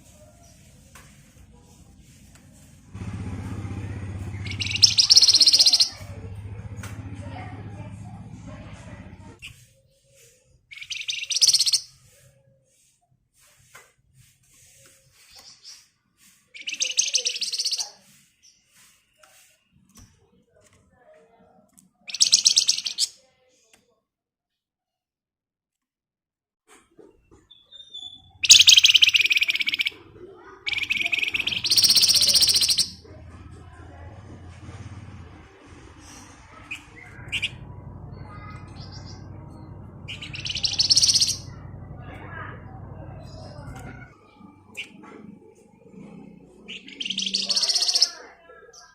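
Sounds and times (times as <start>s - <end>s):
soft bird chirps: 0.0s - 6.2s, 9.3s - 20.1s, 22.0s - 23.3s, 27.0s - 33.1s, 35.7s - 48.9s
bird buzzy trill: 3.2s - 6.1s, 10.7s - 11.9s, 28.0s - 30.0s, 30.7s - 33.0s, 36.5s - 41.8s, 46.7s - 48.2s.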